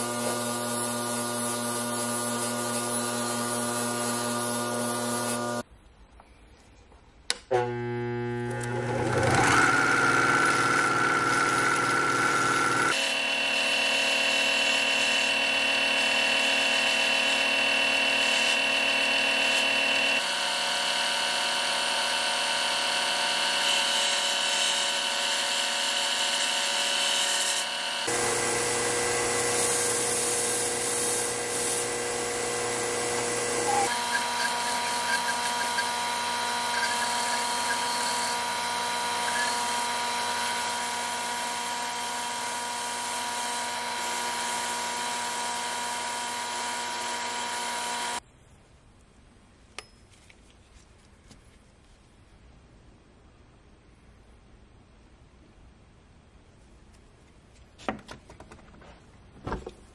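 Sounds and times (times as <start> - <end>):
belt sander whining: 7.5 - 48.2.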